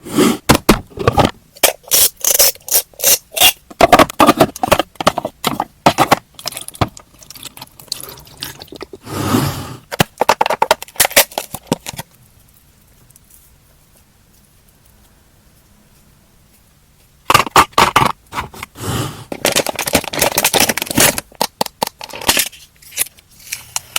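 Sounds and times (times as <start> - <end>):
packaging rustling: 19.3 - 23.0.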